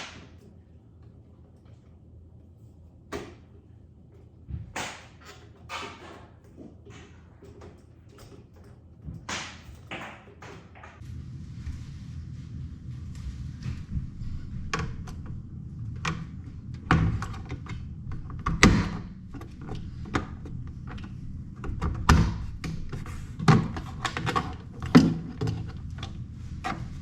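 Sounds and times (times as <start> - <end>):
plastic parts knocking and clicking: 16.0 - 26.8.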